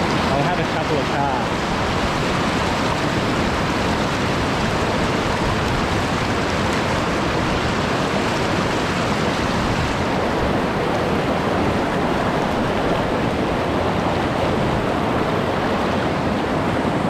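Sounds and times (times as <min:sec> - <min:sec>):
water rushing over rocks: 0:00.0 - 0:17.0.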